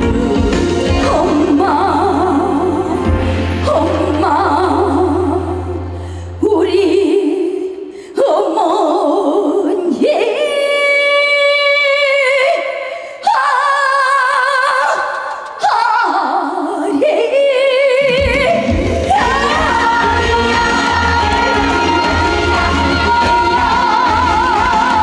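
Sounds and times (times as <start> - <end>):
backing music: 0.0 - 7.0, 18.2 - 25.0
woman singing with vibrato: 0.0 - 25.0.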